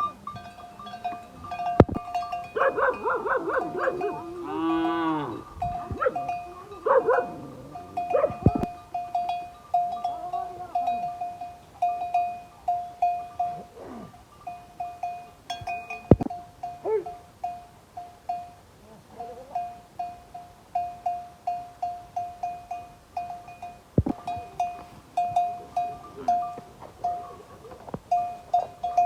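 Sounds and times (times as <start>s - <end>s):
livestock bells clinking: 0.0s - 29.0s
animal calls: 2.0s - 8.8s.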